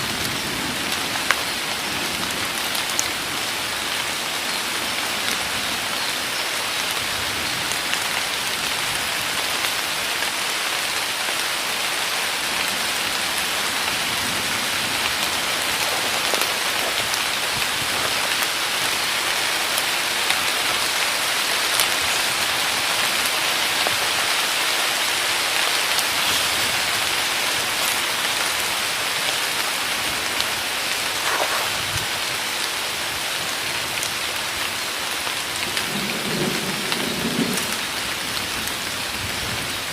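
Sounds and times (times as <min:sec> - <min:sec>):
heavy rain hiss: 0:00.0 - 0:39.9
rain drop ticks: 0:14.8 - 0:21.0.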